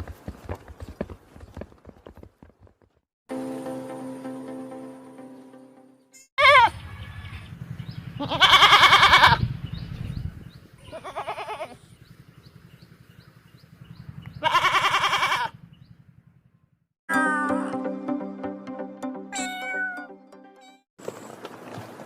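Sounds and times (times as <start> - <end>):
livestock bleating: 8.2 - 9.4, 10.9 - 11.8, 14.4 - 15.6.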